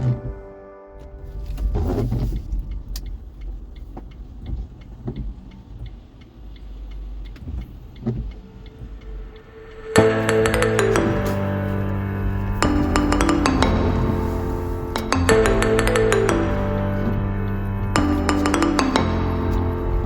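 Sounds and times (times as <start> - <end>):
music: 0.0 - 2.8, 9.3 - 20.0
car road and engine rumble: 1.0 - 20.0
light ticks: 1.4 - 10.6.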